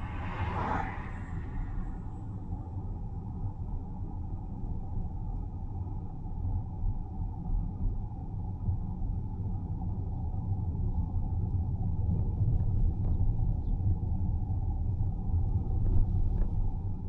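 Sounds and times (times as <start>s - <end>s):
tyre and road noise: 0.0s - 2.3s
car engine drone: 0.0s - 2.9s.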